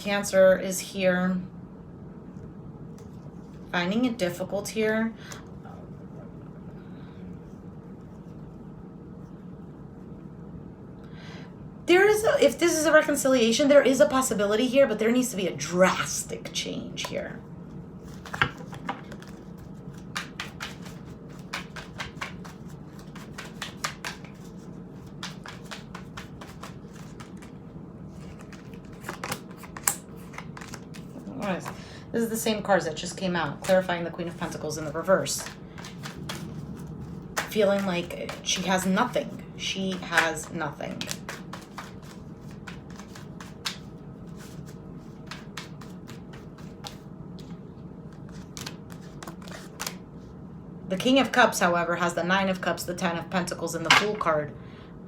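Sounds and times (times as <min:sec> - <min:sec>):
faint low hum: 0:00.0 - 0:55.0
cards being shuffled: 0:18.0 - 0:31.8, 0:33.6 - 0:50.0.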